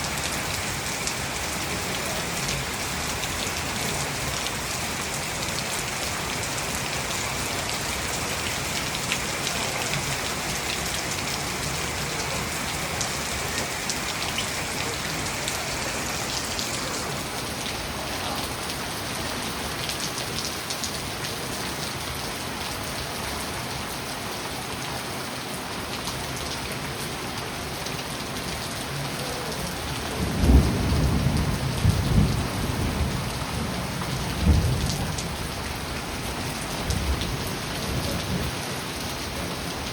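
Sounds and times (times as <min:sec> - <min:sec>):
steady rain falling: 0:00.0 - 0:39.9
distant thunder rumbling: 0:30.2 - 0:35.5.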